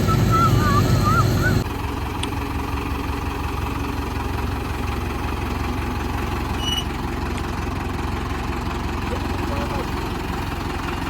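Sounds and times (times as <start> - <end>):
loud sound cutting off: 0.0 - 1.8
diesel tractor engine idling: 0.0 - 11.0.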